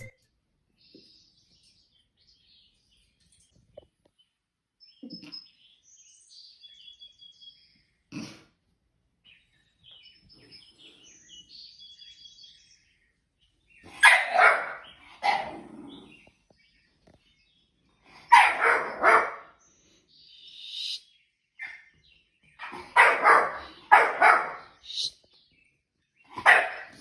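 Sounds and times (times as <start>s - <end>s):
faint high chirps: 0.0s - 1.1s, 20.2s - 21.9s, 24.2s - 25.4s
dog barking: 13.9s - 16.1s, 18.2s - 19.6s, 22.6s - 24.9s, 26.3s - 27.0s.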